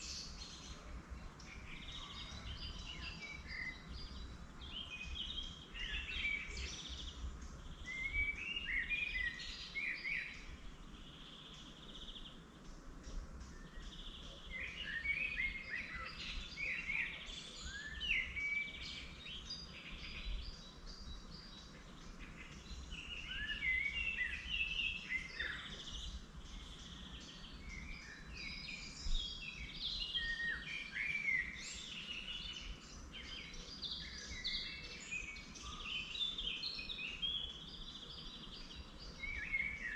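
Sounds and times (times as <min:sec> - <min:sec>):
faint low outdoor rumble: 0:00.0 - 0:30.2
songbirds chirping and warbling: 0:00.0 - 0:39.9.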